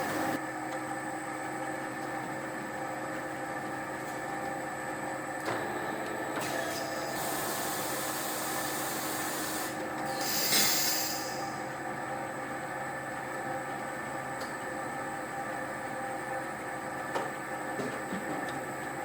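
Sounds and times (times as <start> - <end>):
machinery humming: 0.0 - 0.6, 5.5 - 12.2
hiss: 6.7 - 11.6.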